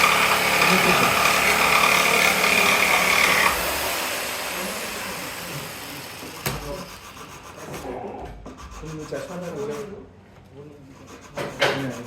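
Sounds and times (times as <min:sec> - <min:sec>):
power tool motor whining: 0:00.0 - 0:07.1.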